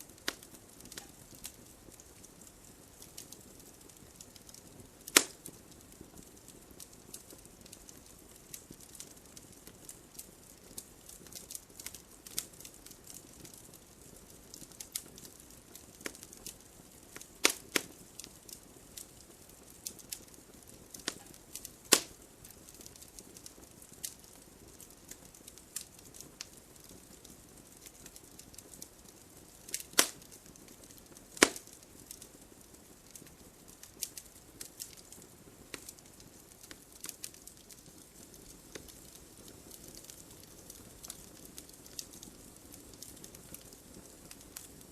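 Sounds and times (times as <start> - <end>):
logs crackling in a fireplace: 0.0 - 44.9
sharp pops of burning logs: 0.1 - 44.9.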